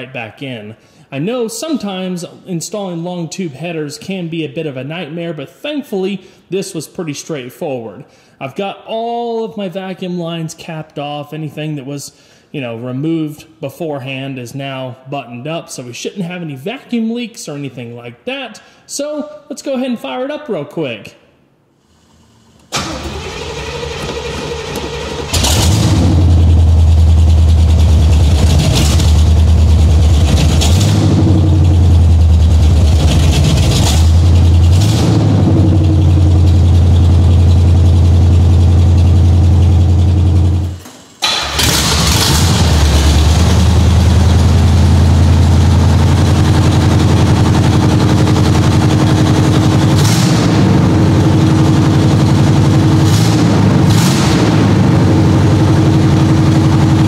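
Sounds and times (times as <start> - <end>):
car engine running loudly: 22.8 - 40.8, 41.6 - 57.0.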